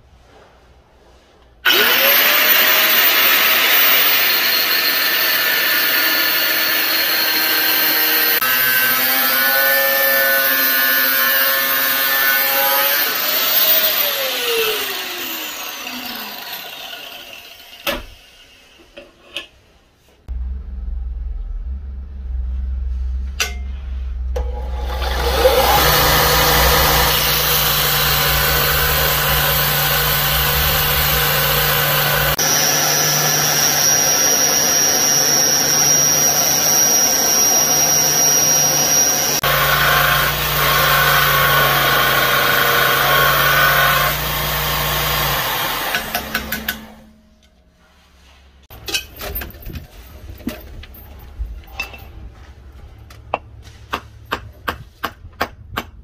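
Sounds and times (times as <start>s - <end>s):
belt grinder grinding steel: 1.6s - 17.9s, 24.4s - 47.1s
motor hum: 20.3s - 47.0s.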